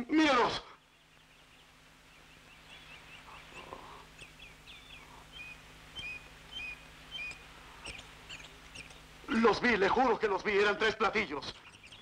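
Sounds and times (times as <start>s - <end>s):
faint bird chirps: 0.6s - 9.4s, 11.4s - 12.0s.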